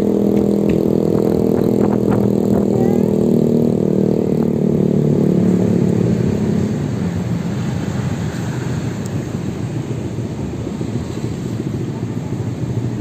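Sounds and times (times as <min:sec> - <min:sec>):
motorbike engine humming: 0:00.0 - 0:13.0.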